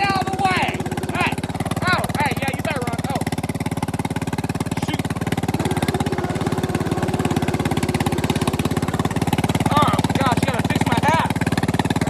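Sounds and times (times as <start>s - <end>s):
mower engine running: 0.0s - 12.0s.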